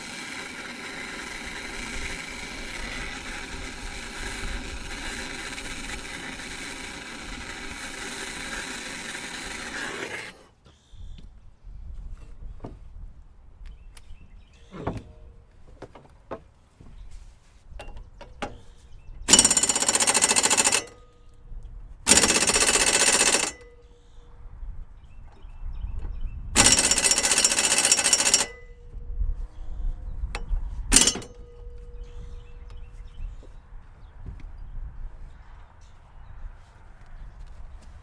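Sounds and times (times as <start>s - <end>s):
impact wrench hammering: 19.3s - 21.0s, 22.1s - 23.7s, 26.6s - 28.7s, 30.9s - 31.7s
light metallic ringing: 30.9s - 32.6s.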